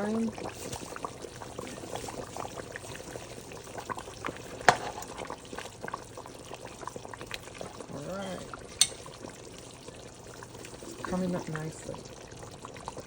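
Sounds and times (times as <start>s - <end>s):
pot bubbling at a boil: 0.0s - 13.0s
sharp pop or knock: 4.6s - 5.1s.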